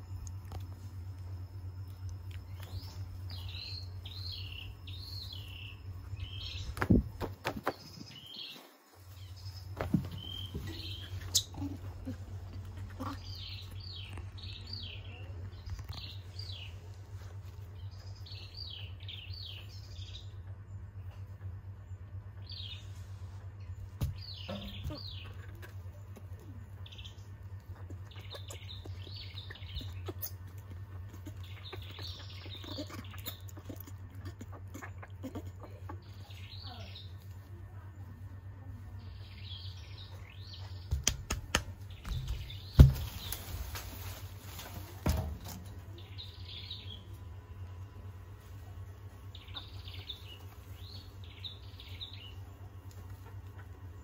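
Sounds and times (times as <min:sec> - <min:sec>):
small birds chirping: 0:00.0 - 0:54.0
steady low hum: 0:00.0 - 0:54.0
sharp knocks: 0:40.9 - 0:43.2.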